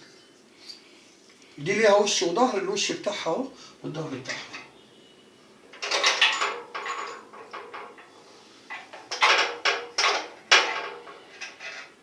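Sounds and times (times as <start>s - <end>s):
small metal parts clinking: 5.7s - 8.1s.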